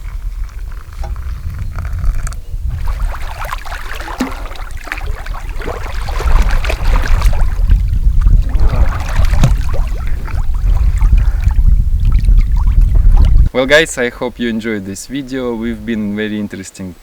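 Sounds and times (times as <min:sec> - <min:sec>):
water lapping and splashing: 0:00.0 - 0:13.5
wind rumbling on microphone: 0:00.0 - 0:16.2
small sharp splashes: 0:02.7 - 0:13.5.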